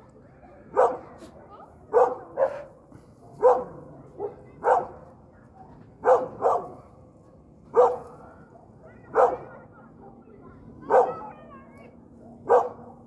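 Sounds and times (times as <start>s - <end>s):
dog barking: 0.7s - 1.2s, 1.9s - 5.0s, 6.0s - 6.8s, 7.7s - 8.4s, 9.1s - 9.6s, 10.9s - 11.3s, 12.4s - 13.0s.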